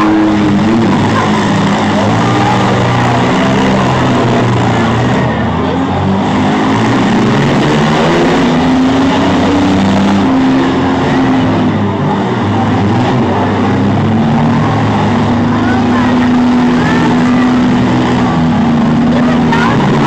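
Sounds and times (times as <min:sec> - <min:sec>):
engines revving hard: 0:00.0 - 0:20.0.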